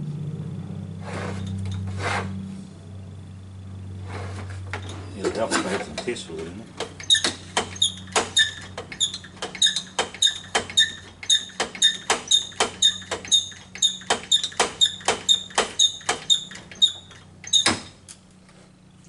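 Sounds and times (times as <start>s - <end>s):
squeaky pump strokes: 4.1s - 18.0s.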